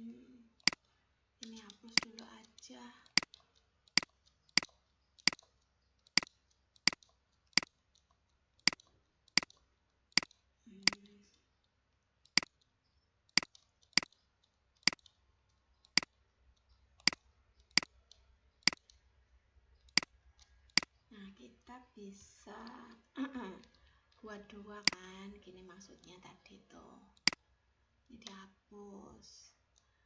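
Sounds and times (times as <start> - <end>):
computer mouse clicking: 0.6 - 19.1, 19.8 - 21.0, 22.6 - 25.1, 27.2 - 27.4.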